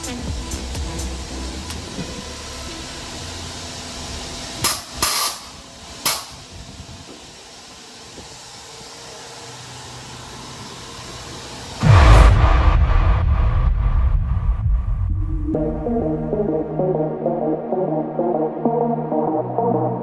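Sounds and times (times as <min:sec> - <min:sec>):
steady hiss: 0:00.0 - 0:11.8
sharp spray blasts: 0:02.5 - 0:06.6.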